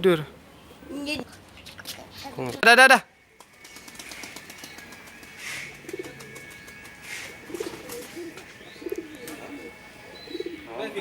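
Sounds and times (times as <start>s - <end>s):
pigeons cooing: 3.4s - 11.0s.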